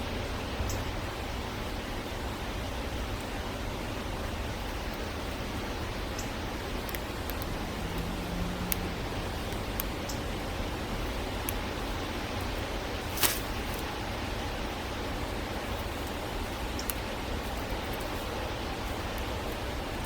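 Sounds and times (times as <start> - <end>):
steady background hiss: 0.0 - 20.0
faint ticks: 6.1 - 13.9, 15.7 - 18.2.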